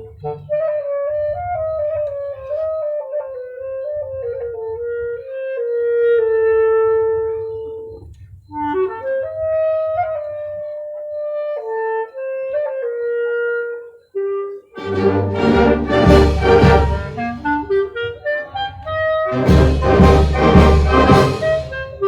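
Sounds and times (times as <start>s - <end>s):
clarinet melody: 0.0s - 22.0s
soft low accompaniment: 14.8s - 22.0s.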